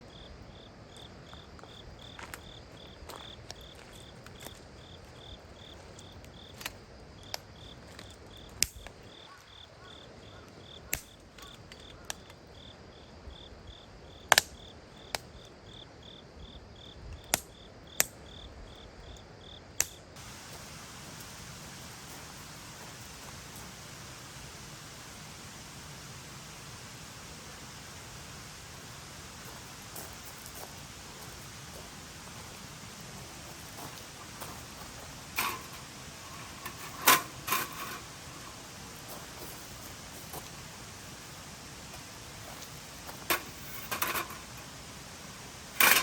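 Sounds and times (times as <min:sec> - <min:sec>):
cricket chirping: 0:00.0 - 0:46.0
burning firewood snapping: 0:08.6 - 0:08.9, 0:14.3 - 0:14.5, 0:17.2 - 0:18.2, 0:19.8 - 0:45.0
steady hiss: 0:18.9 - 0:46.0.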